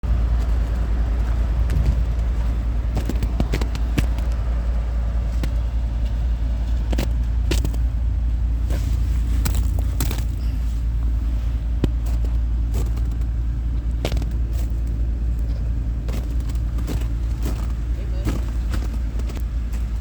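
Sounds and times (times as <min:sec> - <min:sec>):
loud low rumble: 0:00.0 - 0:20.0.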